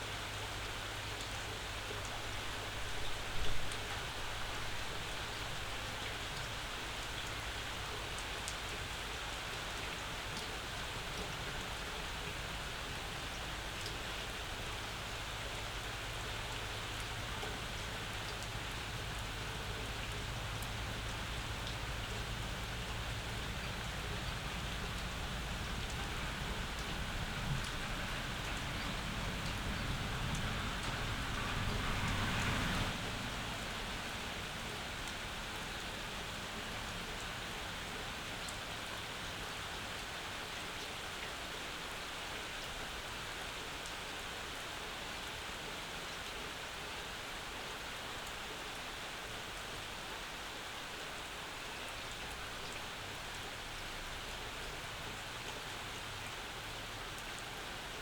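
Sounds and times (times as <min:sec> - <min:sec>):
rain falling: 0:00.0 - 0:58.0
raindrops ticking: 0:15.1 - 0:38.6.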